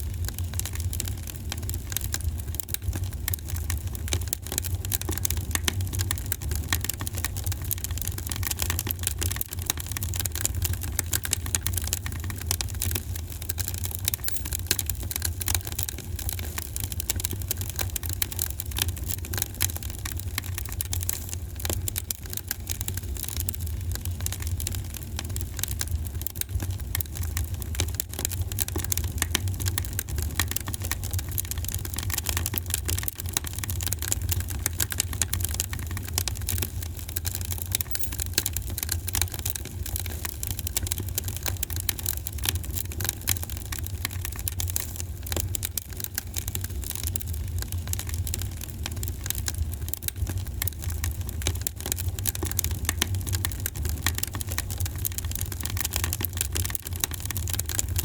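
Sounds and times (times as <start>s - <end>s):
wood fire crackling: 39.6s - 58.0s.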